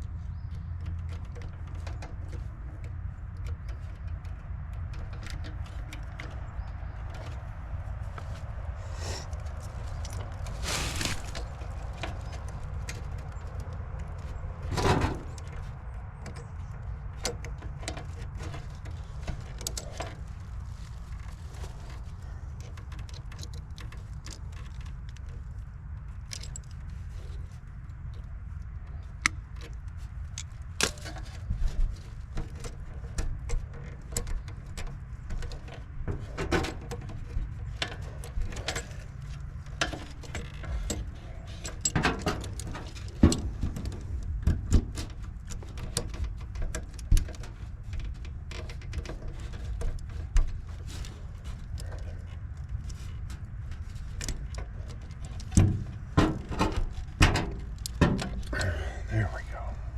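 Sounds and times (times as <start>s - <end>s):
low hum: 58.5s - 59.9s.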